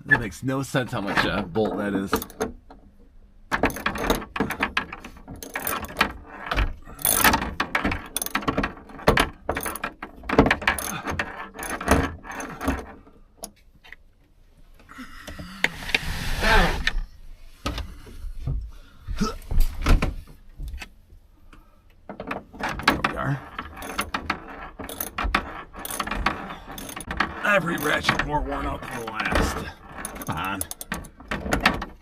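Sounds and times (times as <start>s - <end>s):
hand ratchet clicking: 7.0s - 10.0s, 23.4s - 28.2s
scraping rasp: 15.6s - 17.0s, 23.0s - 31.1s.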